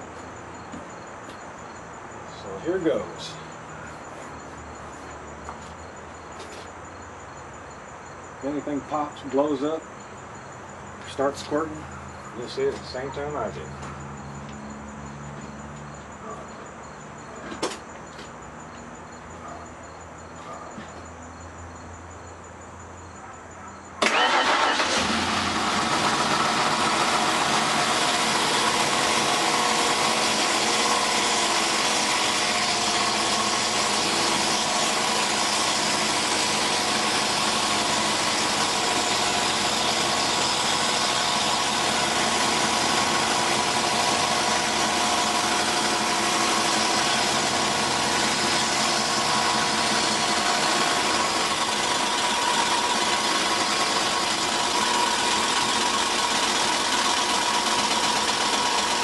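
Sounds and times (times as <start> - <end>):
car engine starting and running: 24.0 - 59.0.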